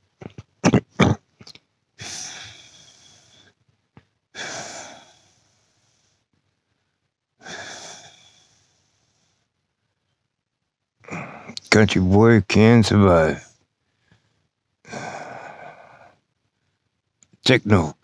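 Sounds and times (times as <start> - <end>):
person exhaling heavily: 2.0 - 3.6, 4.4 - 6.0, 7.4 - 9.0, 14.9 - 16.2.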